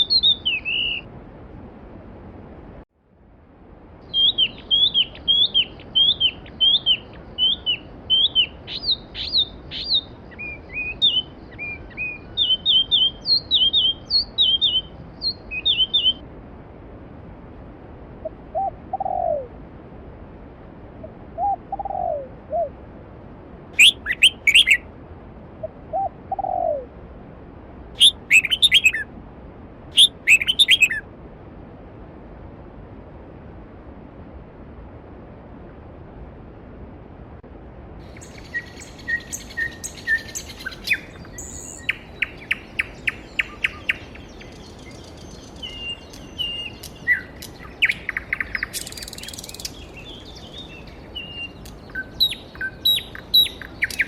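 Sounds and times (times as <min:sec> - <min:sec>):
sharp high bird calls: 0:00.0 - 0:01.0, 0:04.1 - 0:16.2, 0:23.8 - 0:24.8, 0:28.0 - 0:29.0, 0:30.0 - 0:31.0, 0:38.1 - 0:54.0
bird singing high falling notes: 0:04.1 - 0:16.2.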